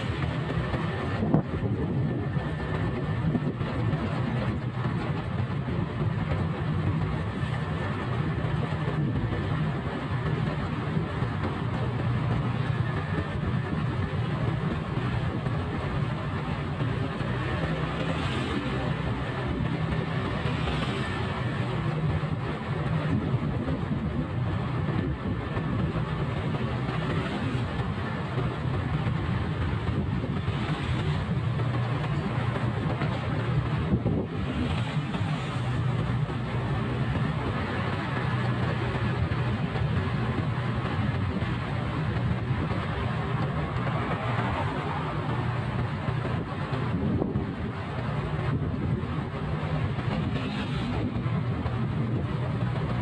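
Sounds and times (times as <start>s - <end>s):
road and wind noise: 0.0s - 53.0s.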